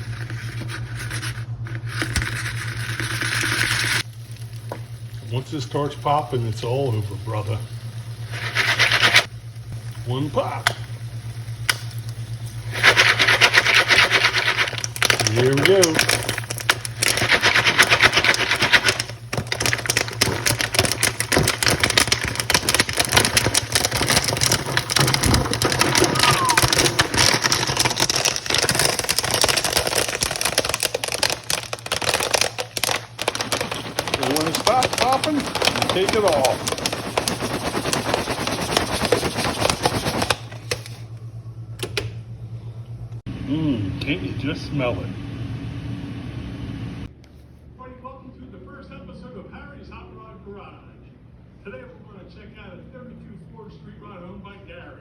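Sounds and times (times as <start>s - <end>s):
popcorn popping: 0.0s - 41.0s.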